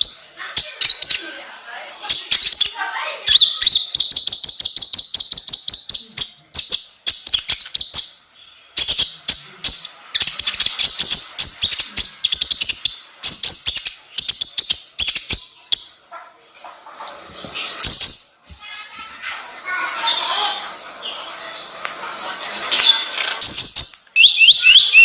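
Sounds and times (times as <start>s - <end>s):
sunbird chirping and trilling: 0.0s - 16.2s, 17.5s - 25.0s.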